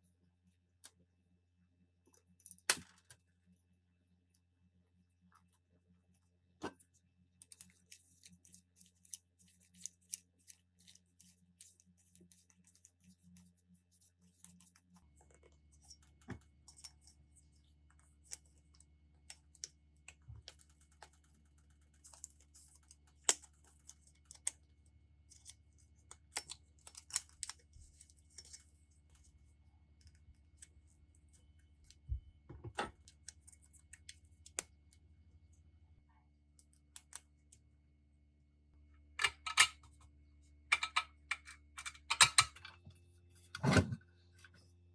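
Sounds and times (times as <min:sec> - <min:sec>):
clicks and taps of tool parts: 0:40.7 - 0:42.8.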